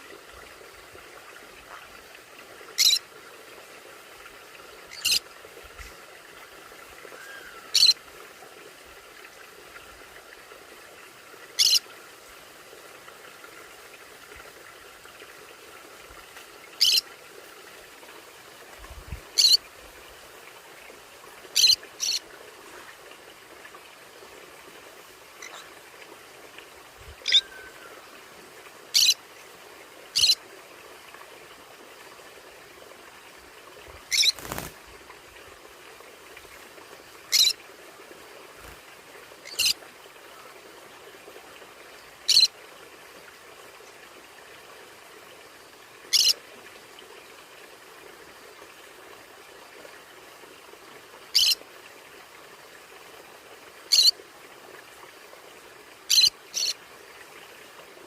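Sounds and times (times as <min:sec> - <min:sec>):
steady background hiss: 0:00.0 - 0:58.0
parrot high-pitched calls: 0:02.8 - 0:03.0, 0:07.2 - 0:08.0, 0:11.6 - 0:11.8, 0:16.8 - 0:17.0, 0:19.4 - 0:19.6, 0:21.6 - 0:22.2, 0:27.2 - 0:27.9, 0:28.9 - 0:29.2, 0:30.2 - 0:30.4, 0:34.1 - 0:34.4, 0:37.3 - 0:37.6, 0:39.4 - 0:39.8, 0:42.3 - 0:42.5, 0:46.1 - 0:46.4, 0:51.4 - 0:51.6, 0:56.1 - 0:56.7.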